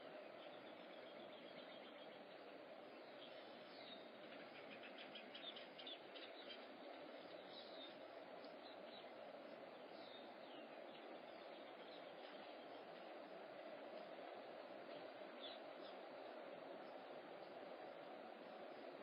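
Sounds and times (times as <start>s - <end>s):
steady low hum: 0.0s - 19.0s
small birds chirping: 0.1s - 13.1s.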